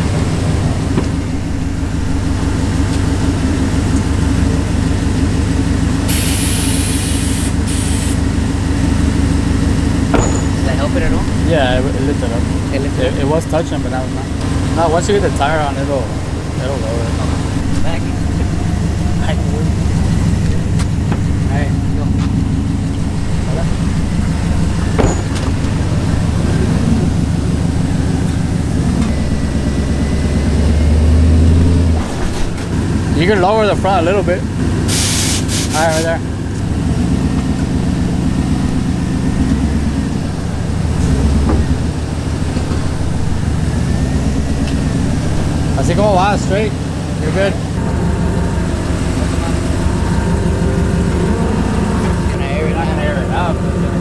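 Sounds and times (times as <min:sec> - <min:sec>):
truck engine idling: 0:00.0 - 0:54.0
air suspension hiss: 0:06.0 - 0:08.4, 0:34.9 - 0:36.2.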